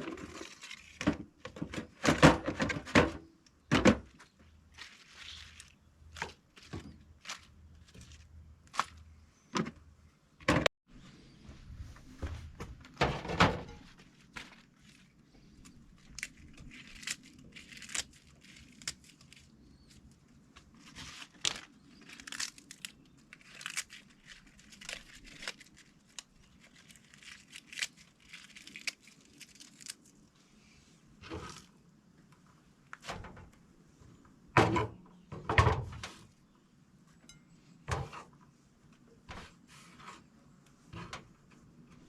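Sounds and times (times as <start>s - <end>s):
objects being handled: 0.0s - 10.7s.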